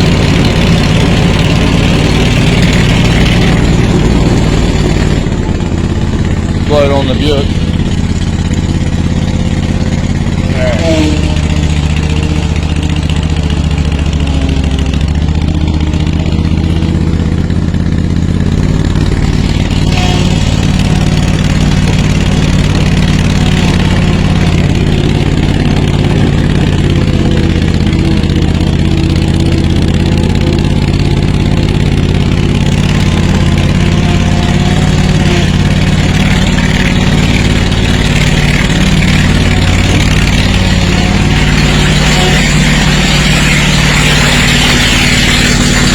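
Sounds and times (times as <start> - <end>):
mower engine running: 0.0 - 45.9.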